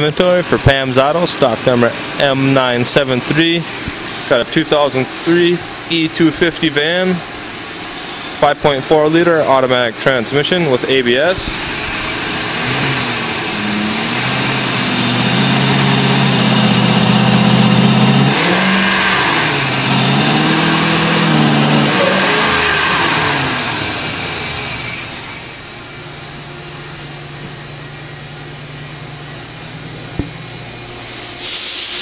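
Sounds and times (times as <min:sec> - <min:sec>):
van engine revving and idling: 0:11.7 - 0:25.5.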